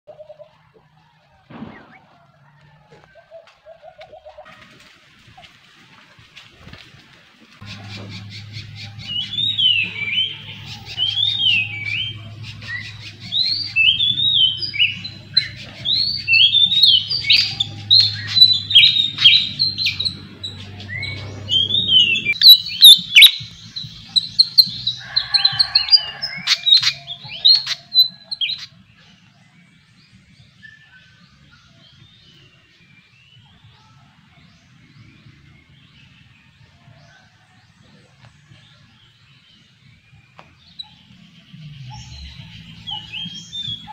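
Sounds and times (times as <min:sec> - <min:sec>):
sharp clicky bird calls: 0:07.6 - 0:28.7
small bird chirping: 0:12.8 - 0:25.5.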